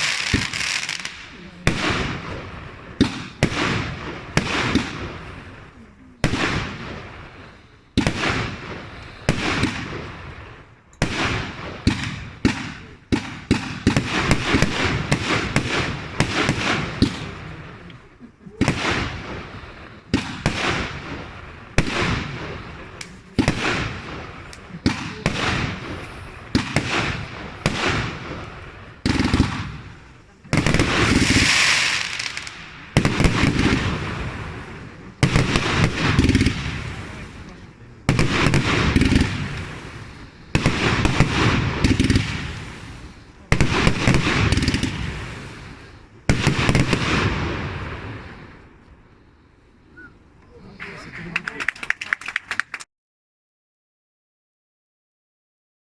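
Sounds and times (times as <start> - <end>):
fireworks crackling hiss: 0.0 - 52.8
fireworks bursting with sharp bangs: 0.0 - 52.9.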